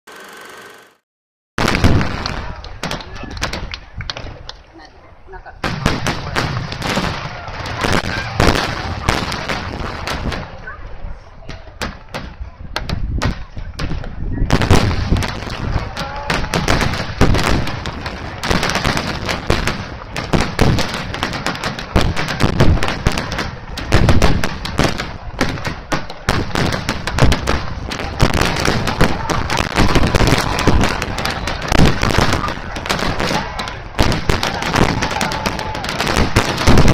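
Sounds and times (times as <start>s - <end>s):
firework shells bursting: 11.8s - 36.9s.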